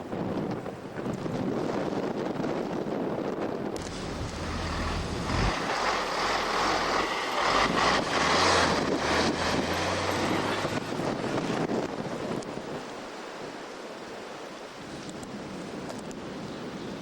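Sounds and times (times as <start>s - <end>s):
tyres hissing on snow: 3.8s - 10.6s
car engine drone: 3.8s - 11.8s.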